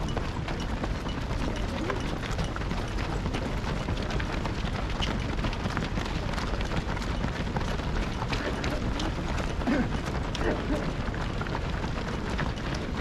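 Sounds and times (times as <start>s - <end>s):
runners' footsteps on road: 0.0s - 13.0s.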